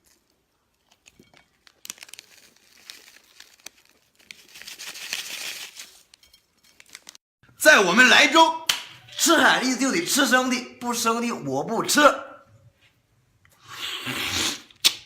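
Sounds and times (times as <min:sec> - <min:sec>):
food crinkling and clicks while eating: 0:00.0 - 0:07.2.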